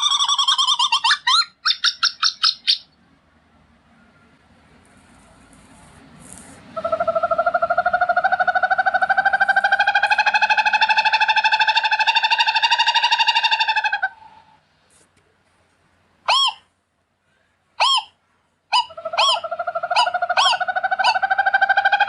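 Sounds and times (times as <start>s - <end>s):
owl trilling: 0.0s - 2.9s, 6.8s - 14.6s, 16.3s - 16.7s, 17.8s - 22.0s.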